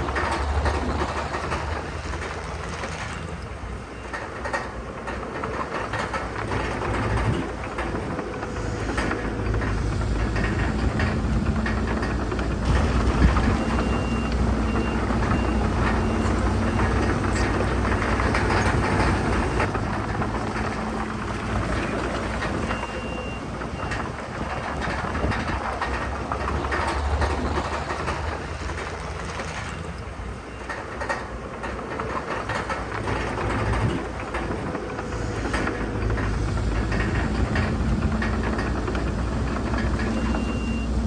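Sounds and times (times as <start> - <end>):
heavy diesel machinery rumbling: 0.0 - 41.0
backup alarm beeping: 12.6 - 19.7.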